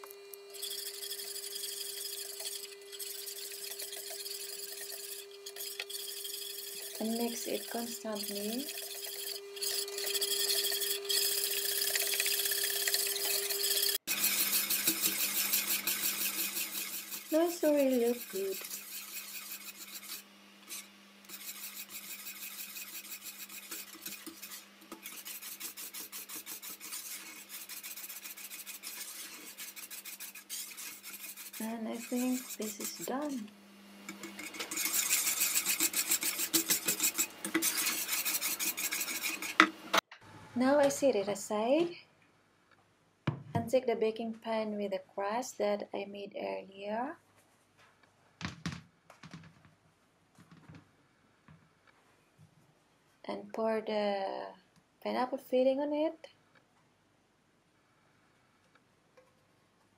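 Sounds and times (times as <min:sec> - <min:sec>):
steady hum: 0:00.0 - 0:41.5
whisk scraping in a pot: 0:00.5 - 0:33.5, 0:34.1 - 0:40.1.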